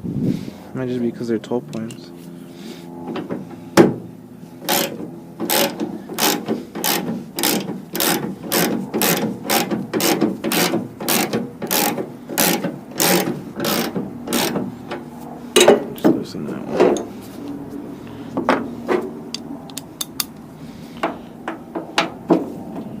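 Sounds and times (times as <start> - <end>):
ratchet wrench clicking: 4.6 - 14.6, 19.7 - 20.3.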